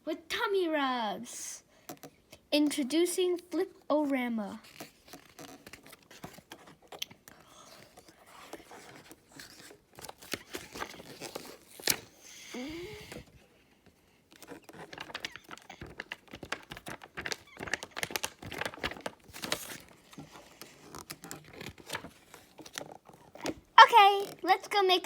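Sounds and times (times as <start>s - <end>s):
book pages flipping: 4.5s - 24.5s.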